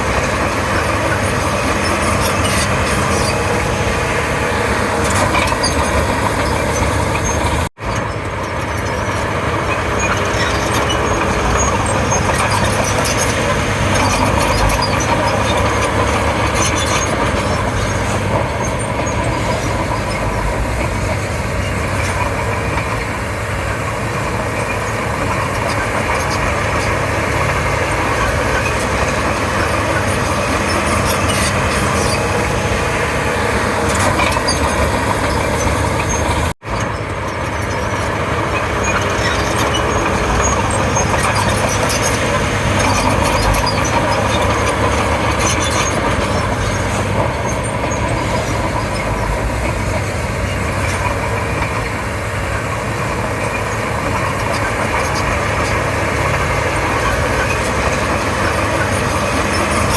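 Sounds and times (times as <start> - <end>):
bulldozer diesel engine under load: 0.0 - 59.9.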